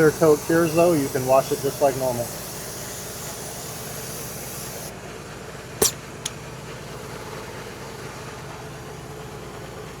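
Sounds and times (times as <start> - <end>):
sharp click: 5.8 - 6.4.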